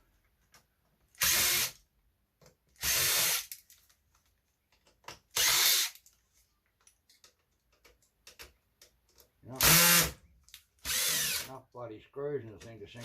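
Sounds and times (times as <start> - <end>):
power drill driving screws: 1.2 - 1.8, 2.8 - 3.5, 5.3 - 6.0, 9.6 - 10.2, 10.8 - 11.5.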